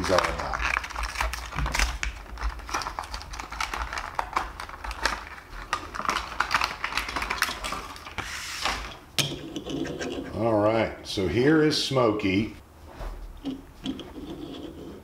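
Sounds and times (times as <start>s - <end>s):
blister package being opened: 0.0s - 8.9s.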